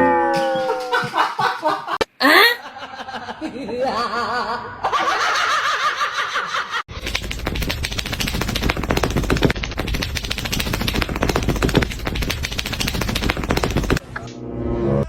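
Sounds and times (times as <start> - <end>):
fast clatter of clicks: 6.9 - 14.0.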